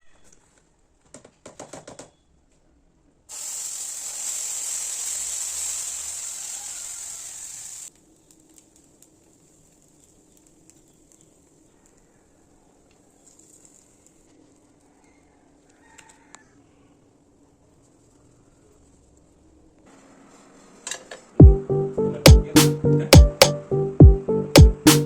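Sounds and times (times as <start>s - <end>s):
loud even hiss: 3.3s - 8.0s.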